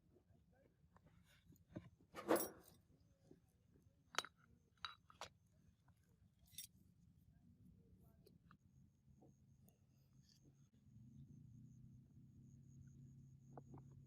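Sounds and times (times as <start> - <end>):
metallic clinks and knocks: 6.5 - 6.7.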